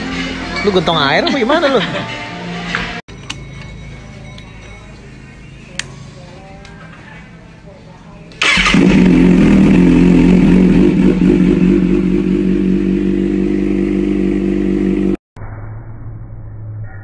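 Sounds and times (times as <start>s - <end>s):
motorcycle engine running: 8.4s - 15.2s
low hum: 8.8s - 17.0s.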